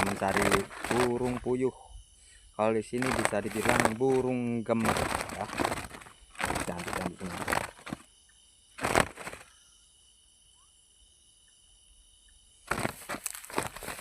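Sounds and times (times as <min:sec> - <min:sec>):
rustling and crackling: 0:00.0 - 0:01.6, 0:03.0 - 0:08.1, 0:08.8 - 0:09.5, 0:12.7 - 0:14.0
night insects trilling: 0:00.0 - 0:14.0.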